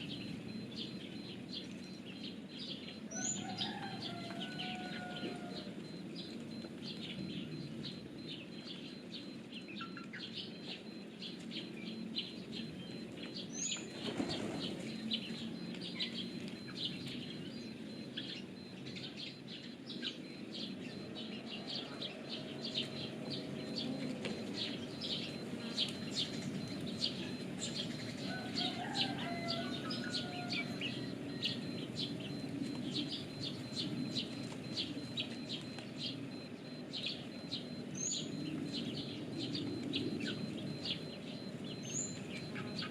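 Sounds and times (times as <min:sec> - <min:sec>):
high rapid bird chirping: 0:00.0 - 0:04.6, 0:05.6 - 0:42.9
pigeon wings flapping: 0:14.0 - 0:14.9.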